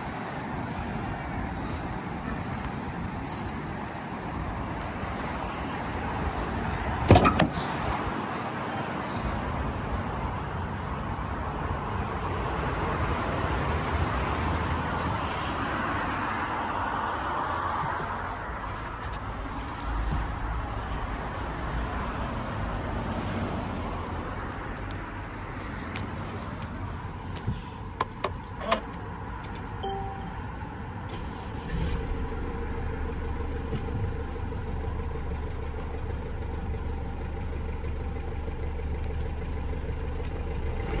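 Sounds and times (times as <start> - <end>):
diesel van engine idling: 0.0 - 16.0, 31.1 - 41.0.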